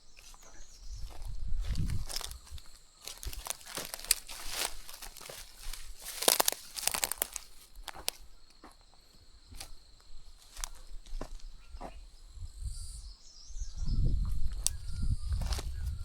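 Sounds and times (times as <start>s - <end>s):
insects droning: 0.0s - 16.0s
low rumble on microphone: 0.4s - 2.7s, 11.9s - 16.0s.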